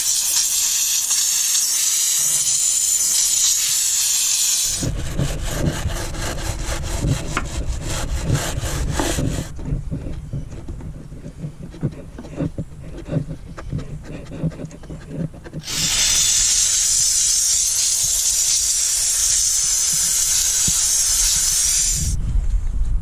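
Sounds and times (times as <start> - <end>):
steam jet hissing: 0.0 - 5.0, 15.6 - 22.2
scrubbing with light knocks: 4.8 - 15.7.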